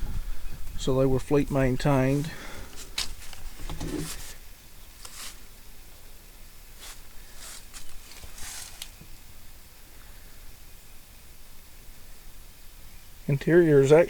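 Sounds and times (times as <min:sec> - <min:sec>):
scuffing footsteps: 0:06.8 - 0:09.1.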